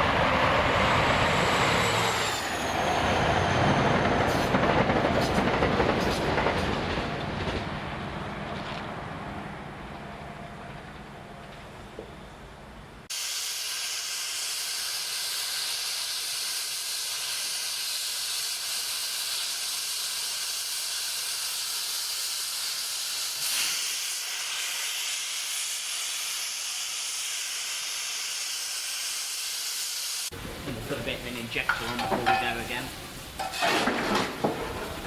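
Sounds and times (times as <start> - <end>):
steam locomotive hissing: 0.0 - 7.3, 13.1 - 33.7.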